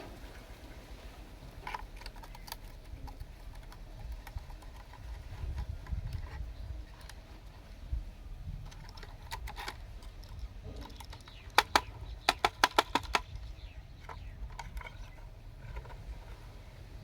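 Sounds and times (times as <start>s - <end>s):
toy bulldozer plastic clicks: 1.6s - 7.6s, 8.6s - 16.0s.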